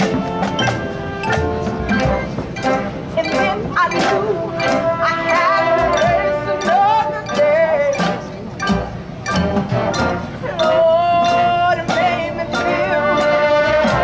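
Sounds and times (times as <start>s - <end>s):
marching band playing: 0.0s - 14.0s
sharp percussion strikes: 0.0s - 14.0s.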